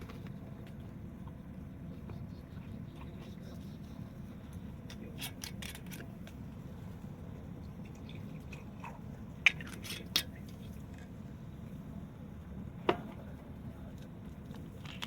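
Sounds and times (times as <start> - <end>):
low rumble of flames: 0.0 - 15.0.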